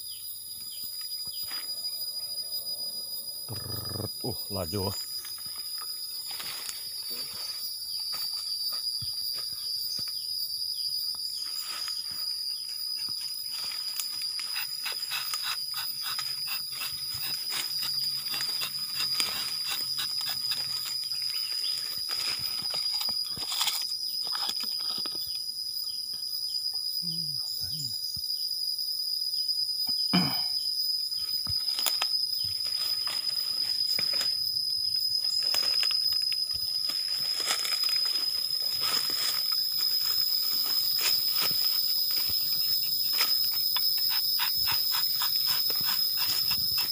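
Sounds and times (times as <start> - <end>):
insects droning: 0.0 - 46.9
small clicks and scrapes: 22.2 - 25.3.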